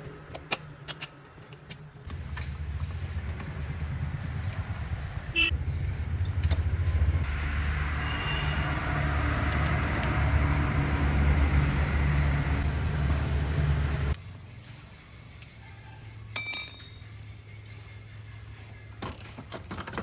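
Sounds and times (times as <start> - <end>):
motor running with low rumble: 2.0 - 15.6.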